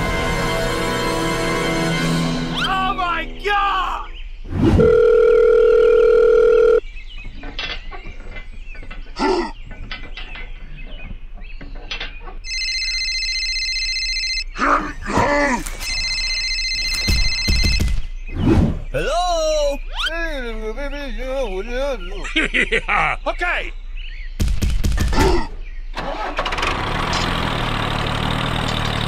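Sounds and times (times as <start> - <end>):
telephone ringtone: 4.8 - 6.8, 12.4 - 14.5, 15.8 - 17.9.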